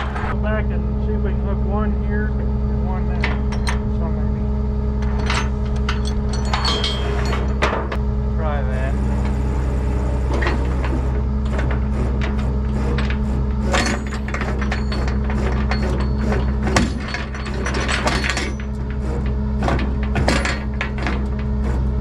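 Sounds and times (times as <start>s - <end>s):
engine idling: 0.0s - 22.0s
metal clicks and clanks: 3.1s - 4.0s, 5.0s - 8.0s, 10.3s - 21.6s.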